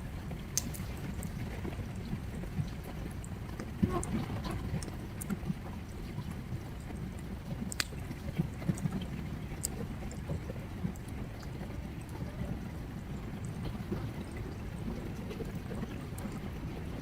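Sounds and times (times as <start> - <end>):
campfire crackling and popping: 0.4 - 4.0, 4.7 - 11.2.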